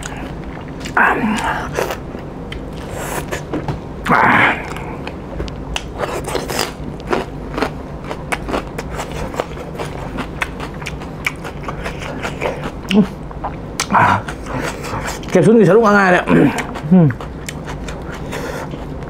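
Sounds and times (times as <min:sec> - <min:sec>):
chewing and biting food: 0:04.6 - 0:15.4, 0:16.3 - 0:19.0.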